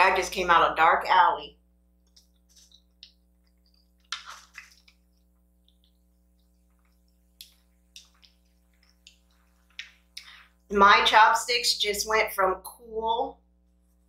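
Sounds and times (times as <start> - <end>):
faint steady hum: 0.0 - 14.0
wet chewing and lip-smacking: 2.1 - 10.3.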